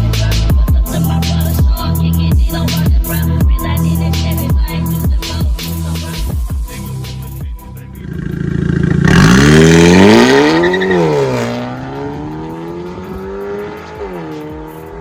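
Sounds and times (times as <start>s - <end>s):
car engine accelerating: 8.0s - 14.9s.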